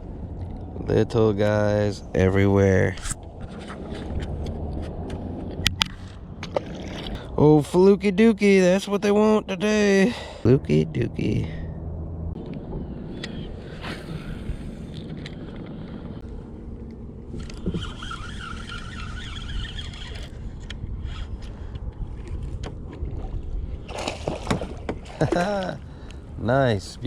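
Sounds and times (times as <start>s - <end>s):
kayak hull low rumble: 0.0s - 27.0s
scrapes: 2.9s - 5.2s
wavering whine: 9.2s - 21.9s
gear clicks: 17.3s - 21.6s.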